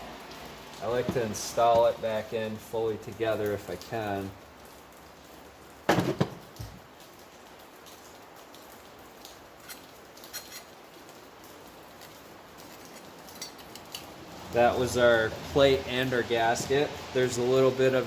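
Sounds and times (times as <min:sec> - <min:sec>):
steady low hiss: 0:00.0 - 0:18.0
faint ticks and scrapes: 0:07.8 - 0:14.2
metal parts clattering: 0:12.6 - 0:14.1.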